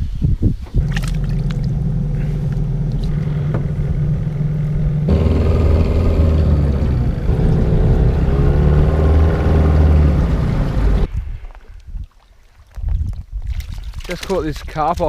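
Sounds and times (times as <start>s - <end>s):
boat motor running: 0.8s - 11.1s.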